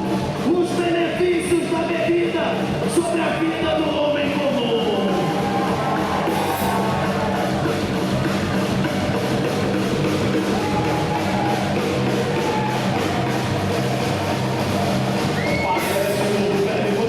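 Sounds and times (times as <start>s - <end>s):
live rock band playing: 3.8s - 17.0s.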